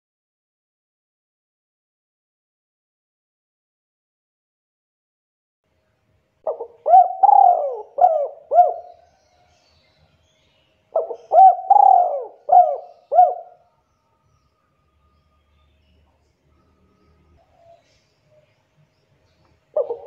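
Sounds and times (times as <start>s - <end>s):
dove cooing: 6.4s - 9.1s, 10.9s - 13.6s, 19.7s - 20.0s.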